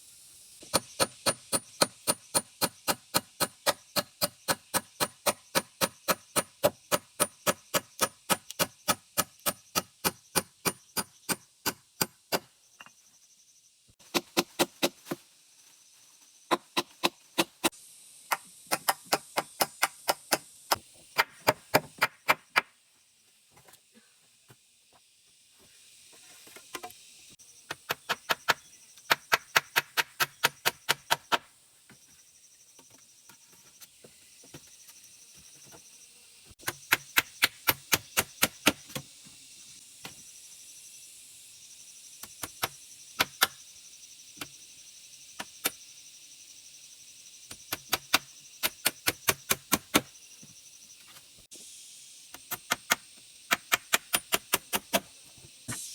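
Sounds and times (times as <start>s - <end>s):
rapid chopping strikes: 0.6s - 12.5s, 14.0s - 15.2s, 16.5s - 17.7s, 18.3s - 22.7s, 27.8s - 31.5s, 36.6s - 39.0s, 47.6s - 50.1s, 52.5s - 55.1s.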